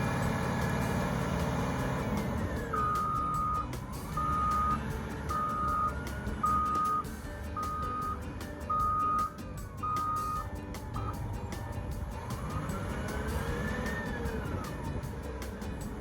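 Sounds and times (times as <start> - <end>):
engine rumbling: 0.0 - 16.0
reversing alarm beeps: 2.7 - 11.2.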